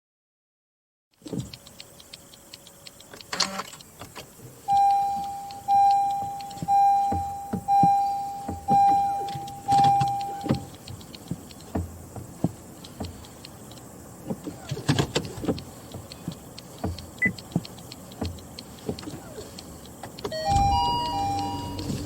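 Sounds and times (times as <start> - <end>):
small clicks in car cabin: 1.2 - 22.0
car warning chime: 4.6 - 10.8, 17.2 - 17.5, 20.2 - 22.0.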